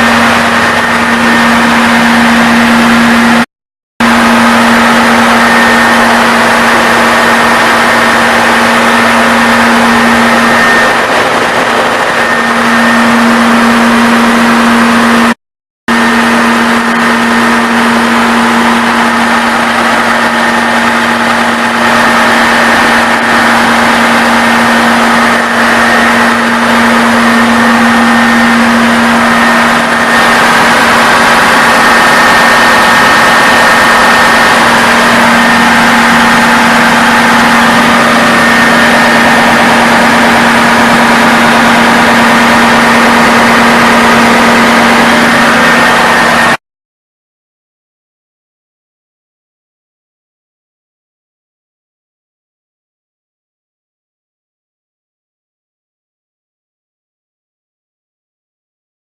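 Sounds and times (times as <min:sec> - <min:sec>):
diesel generator running: 0:00.0 - 0:46.6.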